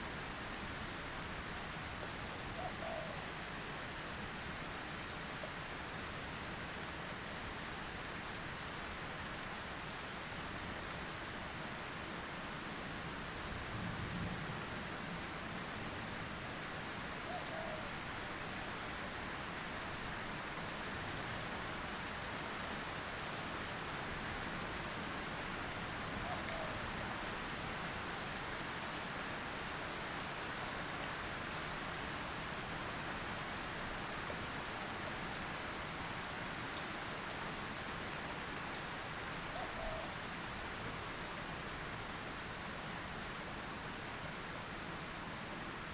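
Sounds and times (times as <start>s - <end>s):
rain falling: 0.0s - 45.9s
raindrops ticking on a surface: 4.0s - 15.8s, 16.9s - 40.6s.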